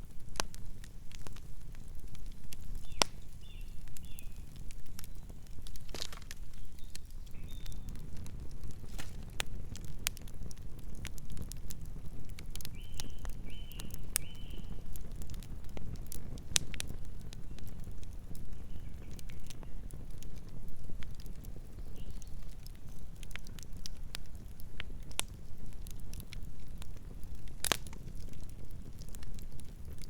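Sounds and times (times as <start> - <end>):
campfire crackling: 0.0 - 30.0
low rumble of flame: 0.0 - 30.0.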